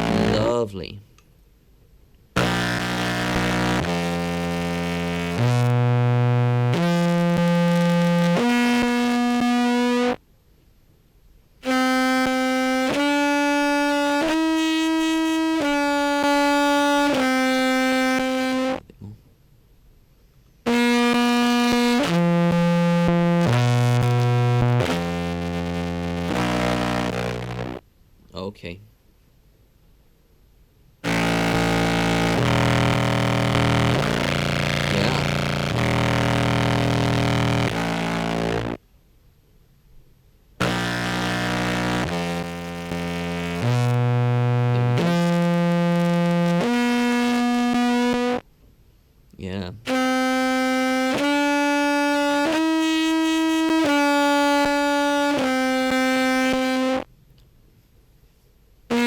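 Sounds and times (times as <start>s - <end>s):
buzzy amplified clarinet notes: 0.0s - 0.6s, 2.4s - 10.2s, 11.6s - 18.9s, 20.7s - 27.8s, 31.0s - 38.8s, 40.6s - 48.4s, 49.8s - 57.1s.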